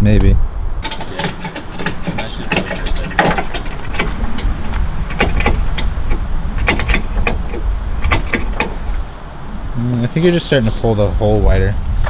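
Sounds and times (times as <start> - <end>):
car engine running: 0.0 - 12.0
sharp clicks and knocks: 0.0 - 12.0.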